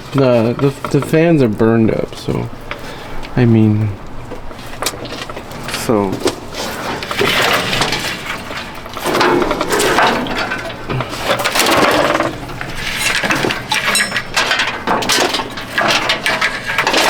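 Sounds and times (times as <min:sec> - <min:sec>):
wiring being torn out: 0:04.8 - 0:17.0.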